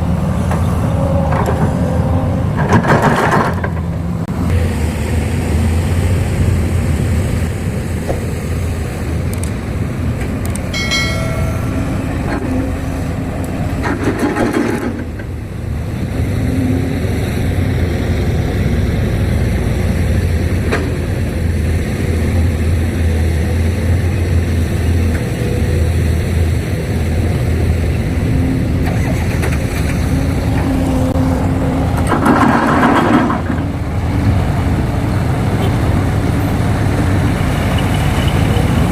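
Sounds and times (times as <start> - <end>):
diesel engines running: 0.0 - 38.9
short high tone: 10.8 - 12.7.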